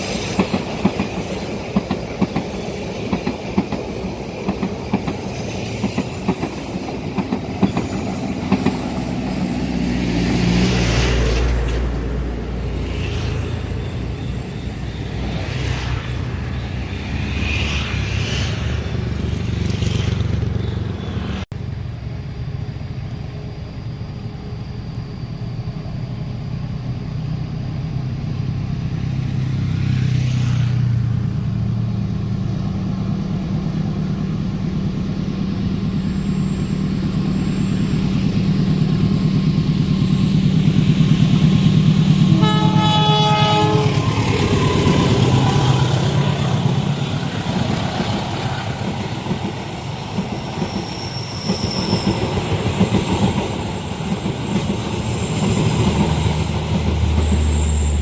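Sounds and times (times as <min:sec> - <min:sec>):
diesel locomotive rumbling: 0:00.0 - 0:58.0
train horn blast: 0:42.2 - 0:45.6.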